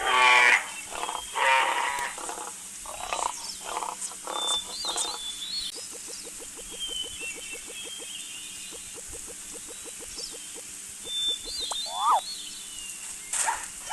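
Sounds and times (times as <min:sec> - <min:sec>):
harsh animal calls: 0:00.0 - 0:05.2, 0:11.3 - 0:12.2
rapid pulsing calls: 0:00.1 - 0:12.8.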